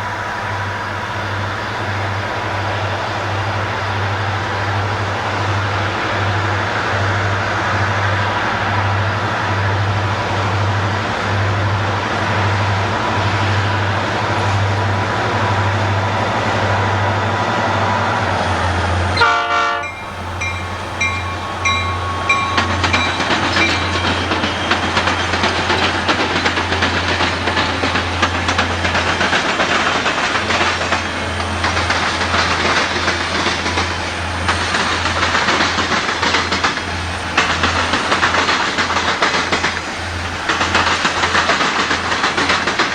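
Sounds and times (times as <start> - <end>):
train engine rumble: 0.0 - 42.9
train horn blasts: 18.6 - 26.4
wheels clicking over rail joints: 19.1 - 42.9.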